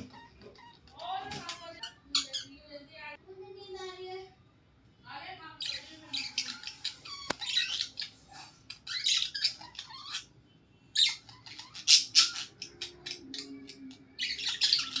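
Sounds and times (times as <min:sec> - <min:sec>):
budgies chattering and squawking: 0:00.0 - 0:03.0, 0:05.5 - 0:15.0.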